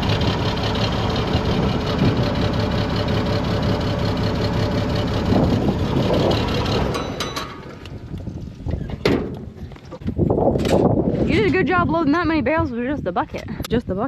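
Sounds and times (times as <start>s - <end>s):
tractor engine running: 0.0s - 9.8s.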